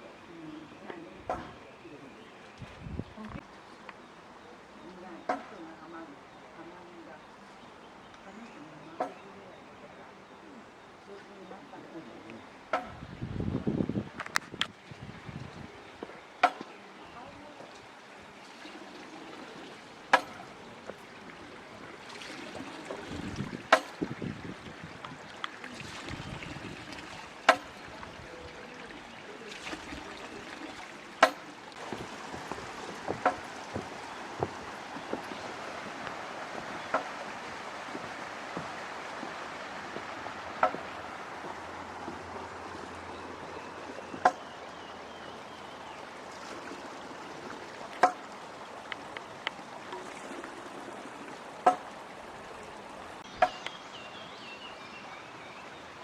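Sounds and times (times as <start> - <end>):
stream babbling over stones: 0.0 - 56.0
sharp clicks or plops: 20.1 - 20.5, 23.5 - 24.2, 27.5 - 27.8, 31.2 - 35.4, 36.0 - 37.3, 40.0 - 42.2, 47.9 - 48.3.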